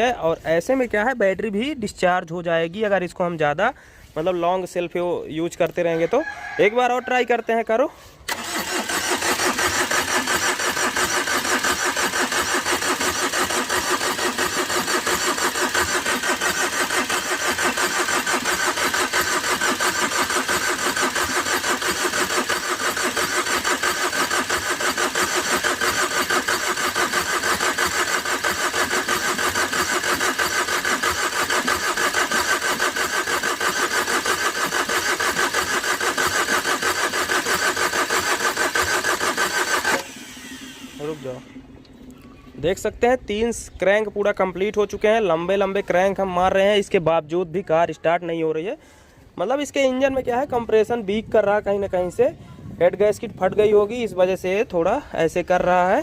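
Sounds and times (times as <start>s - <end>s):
diesel engine cranking: 8.2s - 47.0s.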